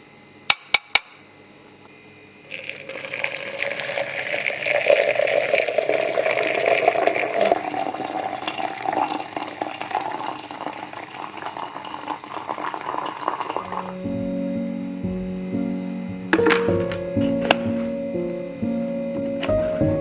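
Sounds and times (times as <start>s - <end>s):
water pouring into container: 2.5s - 13.9s.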